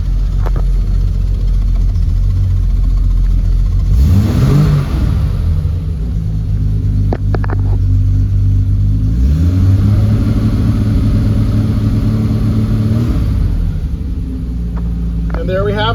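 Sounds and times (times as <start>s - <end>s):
car engine fast idle: 0.0s - 9.1s.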